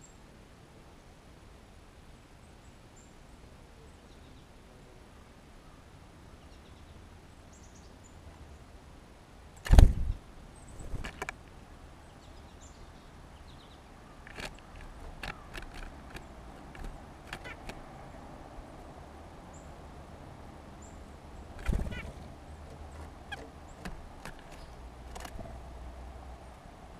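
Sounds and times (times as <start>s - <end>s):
loud thump: 9.7s - 10.1s
birds tapping and clicking: 10.8s - 11.5s, 14.2s - 18.1s, 21.4s - 25.7s
faint high bird chirps: 20.8s - 22.2s.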